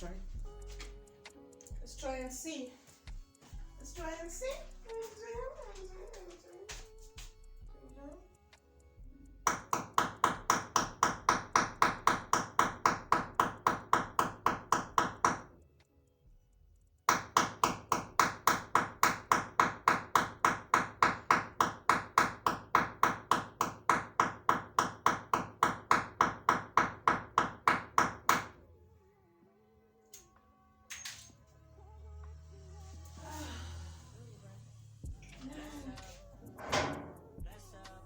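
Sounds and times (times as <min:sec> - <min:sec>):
metallic strikes on a nail: 0:09.4 - 0:15.6, 0:17.0 - 0:28.6.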